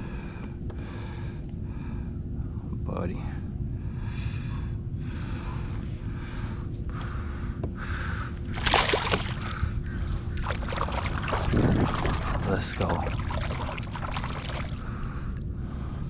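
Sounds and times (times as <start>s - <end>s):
low wind: 0.0s - 16.0s
water noise: 8.4s - 15.4s
water splashing: 8.5s - 15.0s.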